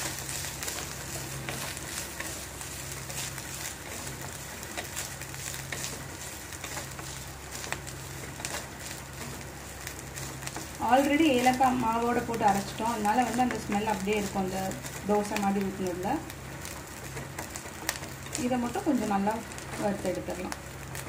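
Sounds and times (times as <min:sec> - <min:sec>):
nuts sizzling in oil: 0:00.0 - 0:21.0
wooden spatula scraping pan: 0:00.2 - 0:15.1.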